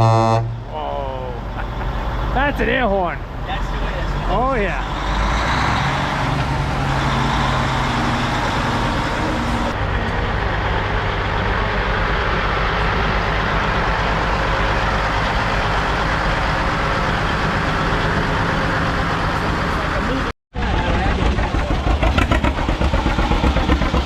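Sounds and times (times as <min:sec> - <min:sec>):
truck diesel engine droning: 0:00.0 - 0:24.0.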